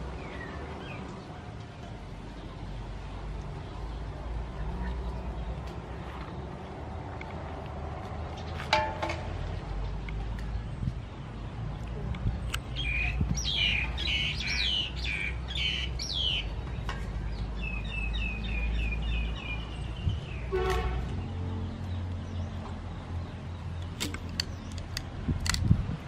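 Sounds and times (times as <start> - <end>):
birds calling: 12.4 - 25.6.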